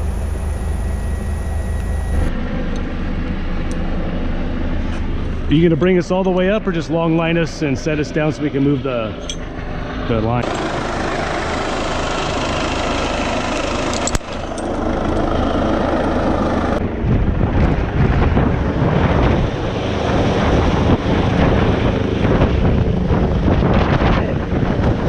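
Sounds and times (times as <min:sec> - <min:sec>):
click: 0:00.0 - 0:02.3
helicopter engine and rotor: 0:00.0 - 0:02.3, 0:10.4 - 0:16.8, 0:19.7 - 0:23.4
wind buffeting microphone: 0:00.0 - 0:02.3.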